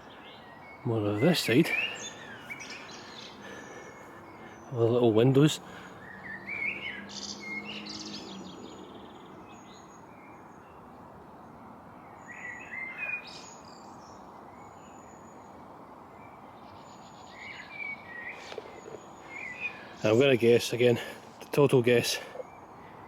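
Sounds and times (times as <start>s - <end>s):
songbirds warbling and trilling: 0.0s - 23.0s
steady background hiss: 0.0s - 23.0s.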